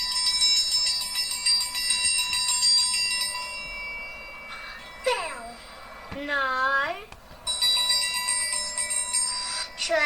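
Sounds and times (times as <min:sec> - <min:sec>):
triangle ringing: 0:00.0 - 0:06.0, 0:07.5 - 0:10.0.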